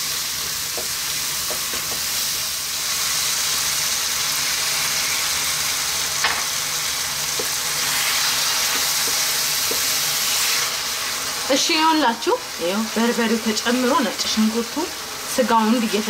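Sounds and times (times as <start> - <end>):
meat sizzling in a frying pan: 0.0 - 16.0.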